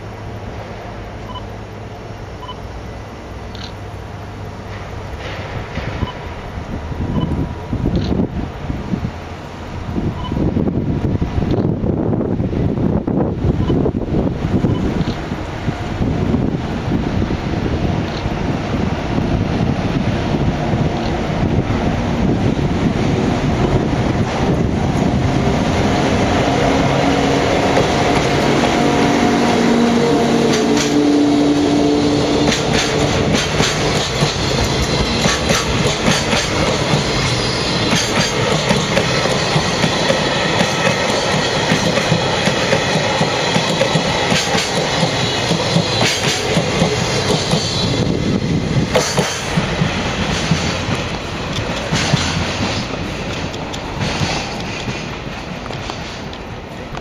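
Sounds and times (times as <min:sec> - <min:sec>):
freight train passing: 0:00.0 - 0:57.0
wheels clattering over rail joints: 0:32.4 - 0:47.8, 0:48.8 - 0:57.0.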